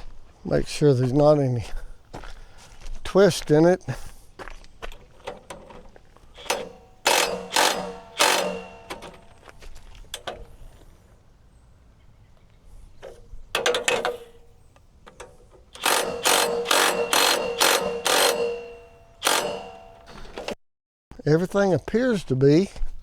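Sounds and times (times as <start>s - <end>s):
ratchet wrench clicking: 6.4s - 9.4s, 15.8s - 20.4s.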